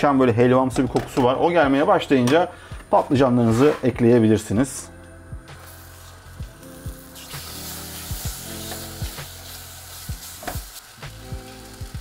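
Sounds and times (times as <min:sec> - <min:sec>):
eggplant sizzling in pan: 0:05.6 - 0:12.0.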